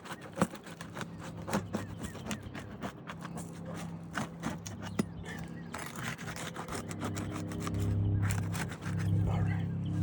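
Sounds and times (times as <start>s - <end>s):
pry tool scraping shingle: 0.0s - 9.4s
low hum: 6.6s - 10.0s.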